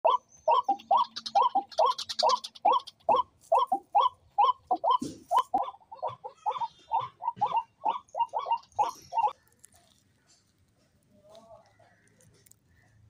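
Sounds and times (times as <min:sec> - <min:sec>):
high bird chirping: 0:00.0 - 0:09.4
birds calling: 0:00.0 - 0:09.5.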